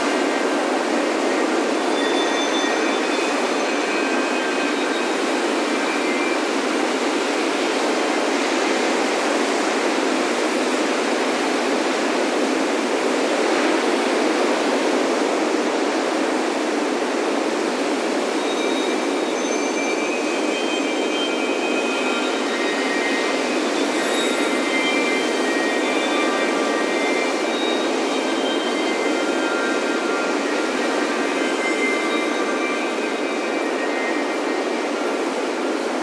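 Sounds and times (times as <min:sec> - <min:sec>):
faint wind chime tones: 0:00.0 - 0:07.6, 0:18.1 - 0:36.0.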